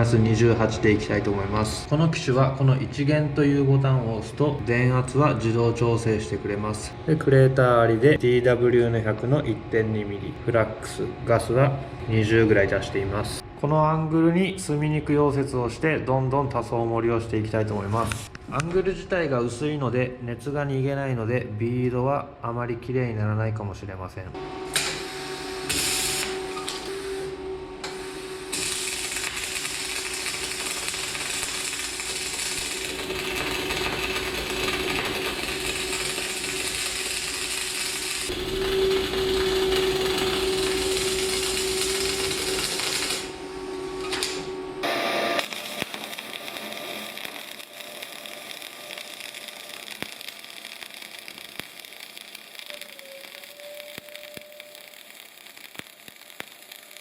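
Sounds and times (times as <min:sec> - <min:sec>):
machine hum: 0:24.3 - 0:57.0
welding arc crackling: 0:24.7 - 0:57.0.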